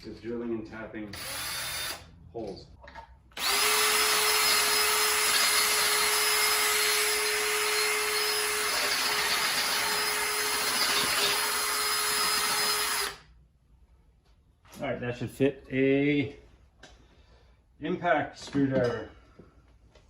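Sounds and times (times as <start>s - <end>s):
power tool motor whine: 3.4s - 13.2s.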